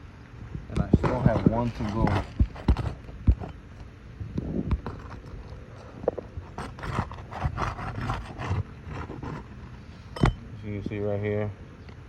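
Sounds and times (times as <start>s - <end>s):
crowbar scraping roof shingles: 6.4s - 9.5s.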